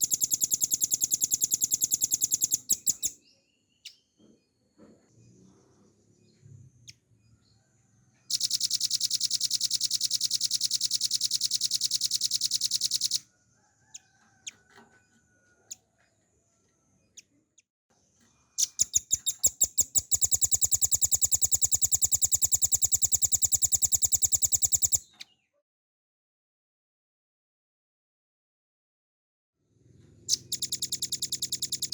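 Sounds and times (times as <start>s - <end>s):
bird singing rapid trills: 0.0s - 4.1s, 8.3s - 13.2s, 18.5s - 25.4s, 30.2s - 31.9s.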